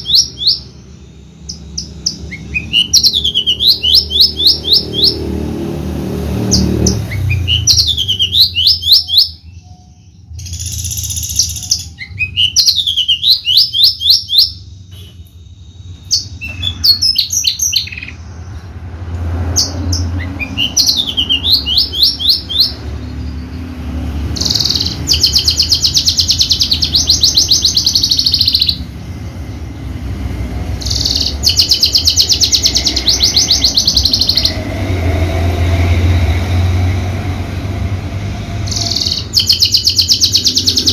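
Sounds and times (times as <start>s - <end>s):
bush lark singing: 0.0s - 5.6s, 6.4s - 18.6s, 19.4s - 30.0s, 30.7s - 37.1s, 38.7s - 40.9s.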